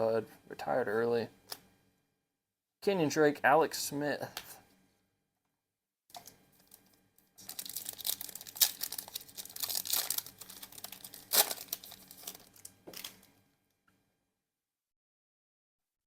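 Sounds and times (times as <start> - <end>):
foil wrapper crinkling: 6.6 - 13.3.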